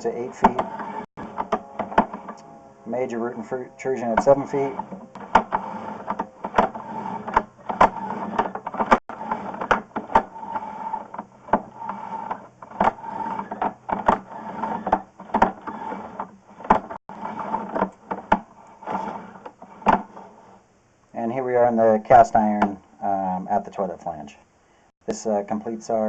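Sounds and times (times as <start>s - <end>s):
mechanical hum: 0.0s - 21.2s
cable clicks and knocks: 0.3s - 2.5s, 4.2s - 20.2s.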